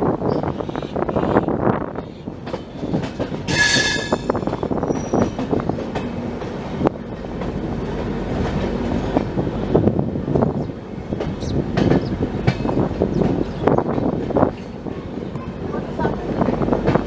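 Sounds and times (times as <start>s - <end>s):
train wheels rumbling and clicking: 0.0s - 17.0s
high-pitched metallic squeal: 3.5s - 4.4s.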